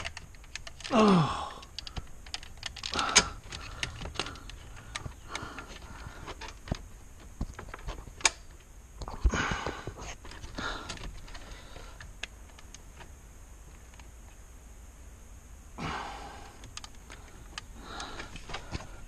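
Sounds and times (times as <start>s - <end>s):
plastic connectors clicking: 0.0s - 6.8s, 16.6s - 18.9s
man breathing heavily: 0.8s - 2.2s, 2.8s - 6.7s, 9.1s - 12.2s, 15.8s - 19.0s.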